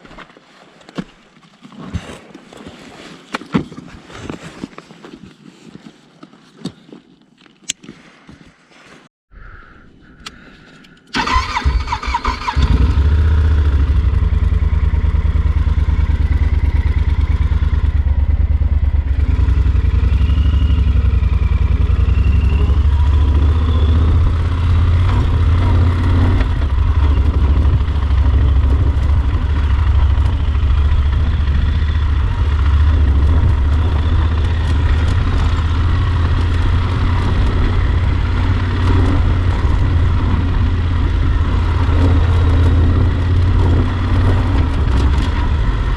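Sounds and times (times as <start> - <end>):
motorcycle engine starting: 11.1 - 45.9.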